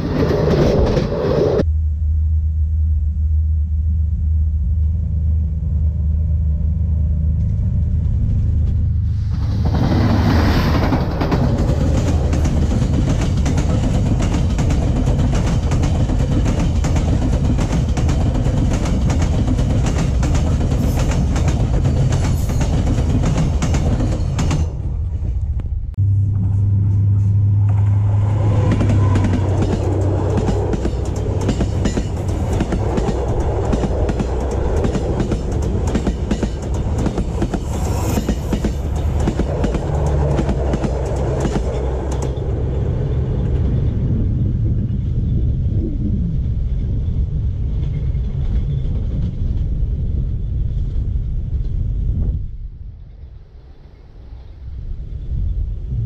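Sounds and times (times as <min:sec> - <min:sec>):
train wheels rumbling on rail: 0:00.0 - 0:01.7, 0:04.2 - 0:56.0
wheels clattering over rail joints: 0:27.7 - 0:43.8.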